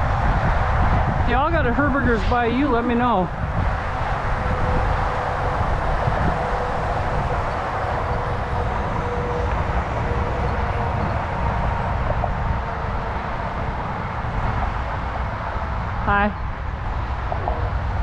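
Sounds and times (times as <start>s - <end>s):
wind on microphone: 0.0s - 18.0s
bicycle tyres rolling on pavement: 2.8s - 15.5s.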